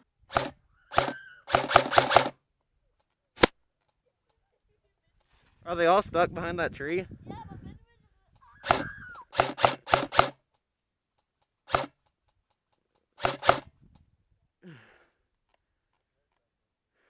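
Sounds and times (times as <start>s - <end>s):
airsoft gun shots: 0.3s - 2.4s, 8.6s - 10.4s, 11.7s - 12.0s, 13.2s - 13.7s.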